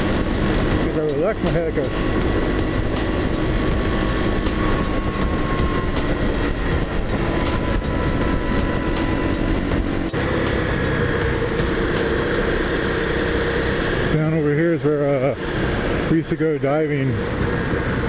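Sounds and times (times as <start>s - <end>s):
wind buffeting microphone: 0.0s - 13.2s
motorcycle engine running: 0.0s - 18.0s.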